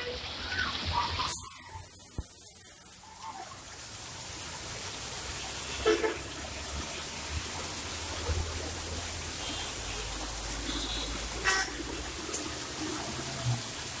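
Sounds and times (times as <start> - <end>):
rain hissing: 0.0 - 14.0
vehicle horn toot: 10.7 - 11.8.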